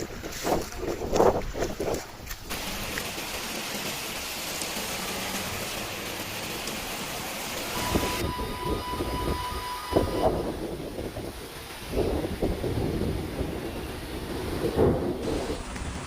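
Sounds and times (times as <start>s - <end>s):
heavy rain falling: 2.5s - 16.0s
steady high tone: 7.7s - 10.7s.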